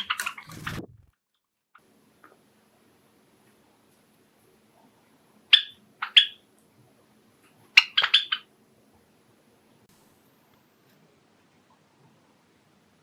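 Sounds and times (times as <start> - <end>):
sparrows chirping: 5.5 - 6.4, 7.7 - 8.5.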